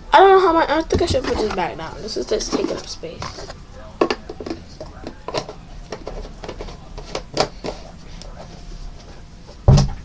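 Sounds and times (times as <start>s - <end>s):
objects clicking and knocking on desk: 2.4s - 7.8s
loud thump of object put down: 9.7s - 10.0s.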